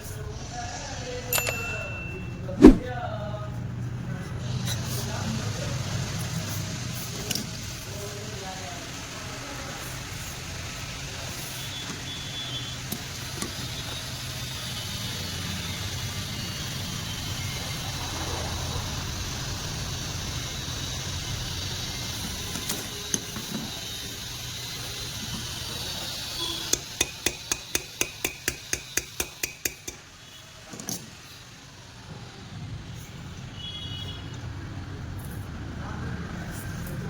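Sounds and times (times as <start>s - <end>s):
sharp metallic taps: 26.7s - 30.1s.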